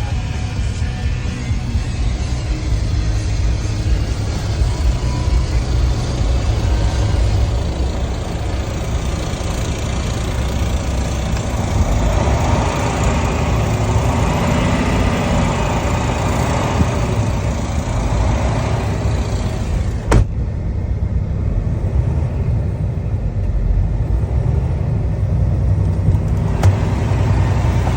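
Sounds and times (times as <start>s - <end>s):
truck diesel engine running: 0.0s - 27.9s.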